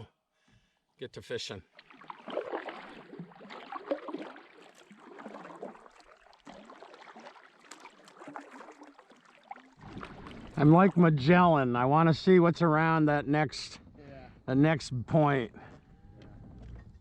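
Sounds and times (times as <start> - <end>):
paddle splashing in water: 1.6 - 11.5
water trickling and gurgling: 1.6 - 11.5.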